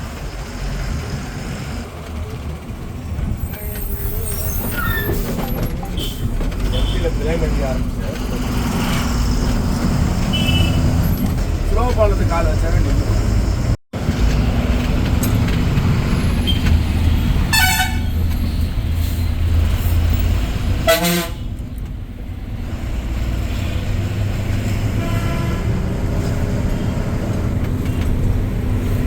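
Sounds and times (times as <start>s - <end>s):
vehicle horns honking: 5.8s - 7.2s, 10.2s - 11.1s, 17.5s - 18.2s, 20.8s - 21.5s, 24.9s - 25.8s.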